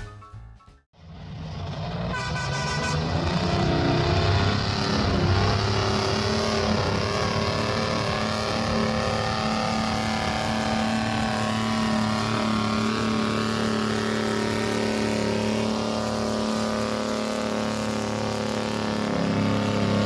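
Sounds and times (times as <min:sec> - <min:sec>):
tractor engine at high revs: 0:01.0 - 0:20.0.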